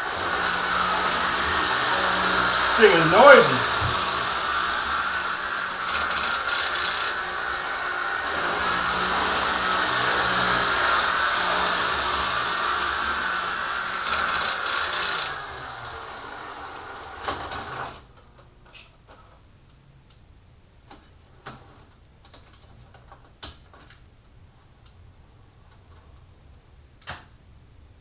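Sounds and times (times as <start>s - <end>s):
model train motor grinding whir: 5.5s - 17.2s.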